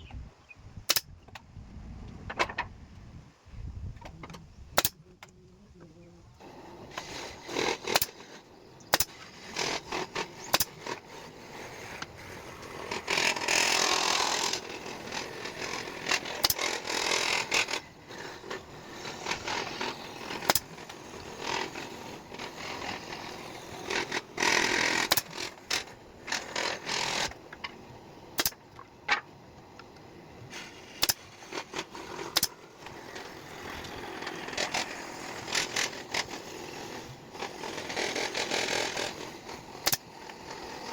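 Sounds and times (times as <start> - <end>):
scraping or rubbing: 9.0 - 27.4, 30.5 - 40.9.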